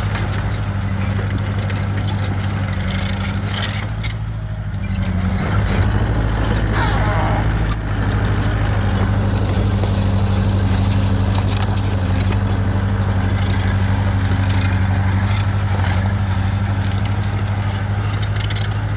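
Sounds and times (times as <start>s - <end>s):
diesel engine running under load: 0.0s - 18.9s
metallic rattle: 4.8s - 18.8s.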